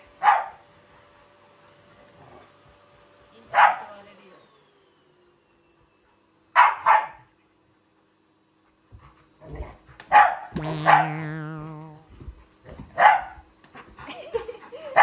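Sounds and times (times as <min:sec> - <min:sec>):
dog barking: 0:00.2 - 0:00.6, 0:03.5 - 0:03.9, 0:06.6 - 0:07.3, 0:10.1 - 0:11.2, 0:13.0 - 0:13.4
dog yipping: 0:06.6 - 0:07.2, 0:10.1 - 0:12.0.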